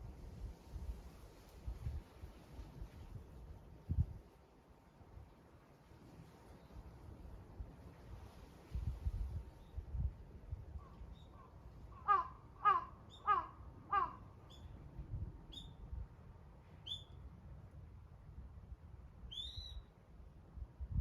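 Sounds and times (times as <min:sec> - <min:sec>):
crow cawing: 0:11.9 - 0:14.3
small bird chirping: 0:15.5 - 0:15.8, 0:16.8 - 0:17.2, 0:19.3 - 0:19.9.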